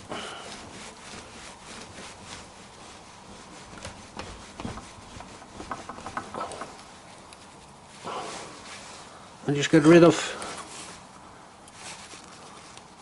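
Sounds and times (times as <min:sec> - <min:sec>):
wood rubbing: 0:00.0 - 0:08.9
light wooden knocks: 0:03.6 - 0:07.4.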